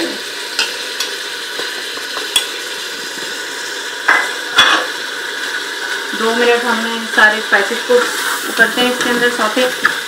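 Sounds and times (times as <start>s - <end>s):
meat sizzling in oil: 0.0s - 10.0s.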